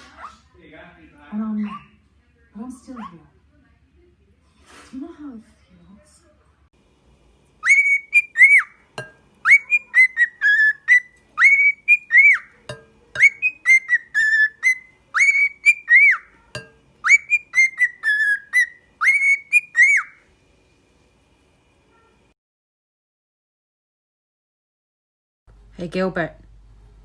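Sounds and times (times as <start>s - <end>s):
pet bird whistling a tune: 7.6s - 8.8s, 9.4s - 12.5s, 13.2s - 16.3s, 17.0s - 20.2s.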